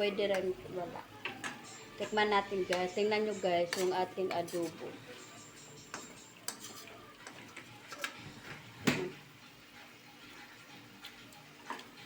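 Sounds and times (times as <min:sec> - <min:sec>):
utensil scraping a cooking pan: 0:01.5 - 0:08.8.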